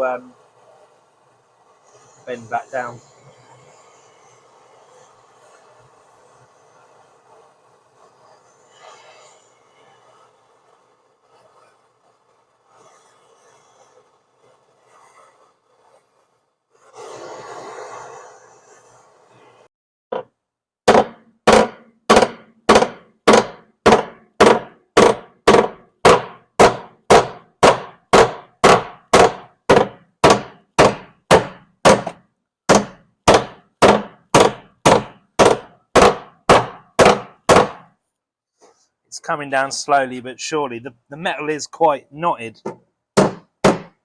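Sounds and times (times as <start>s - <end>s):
hammer striking steel: 20.9s - 37.9s.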